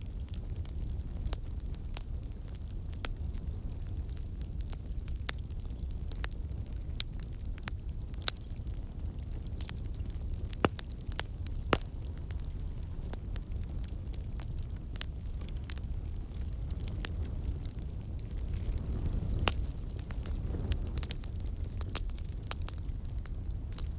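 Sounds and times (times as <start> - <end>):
wood fire crackling: 0.0 - 23.9
sharp pops of fire: 9.4 - 13.9, 14.5 - 23.9.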